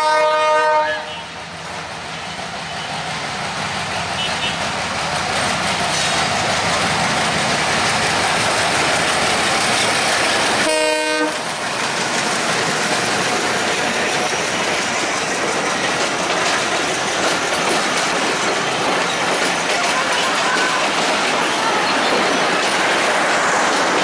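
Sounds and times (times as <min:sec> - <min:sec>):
train horn blast: 0:00.0 - 0:01.3, 0:10.6 - 0:11.4
diesel train passing: 0:00.0 - 0:24.0
wheels clattering on track: 0:01.7 - 0:24.0.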